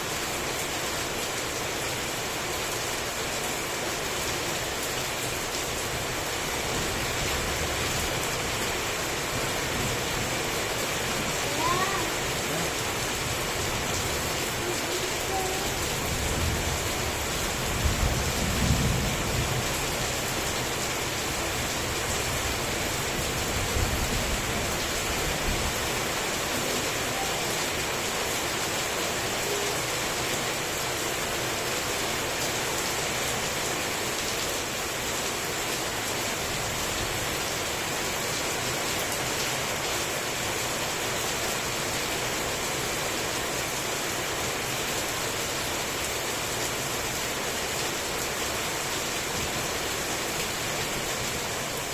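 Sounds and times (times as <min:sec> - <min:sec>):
heavy rain falling: 0:00.0 - 0:51.9
low thunder rumbles: 0:16.1 - 0:19.8.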